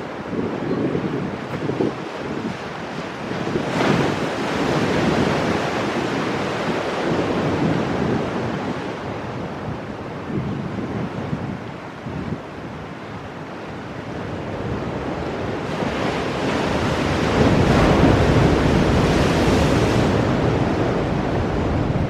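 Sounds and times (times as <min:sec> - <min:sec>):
waves crashing on rocks: 0:01.2 - 0:11.2, 0:14.1 - 0:22.0.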